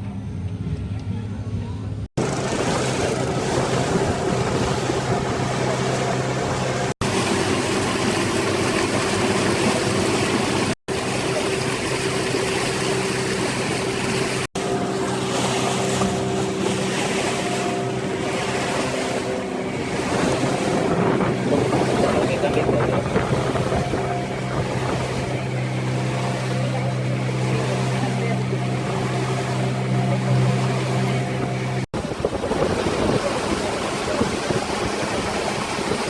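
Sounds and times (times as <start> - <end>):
motorboat engine running: 0.0 - 36.0
rushing water: 2.2 - 36.0
wind noise: 19.7 - 25.4, 32.0 - 36.0.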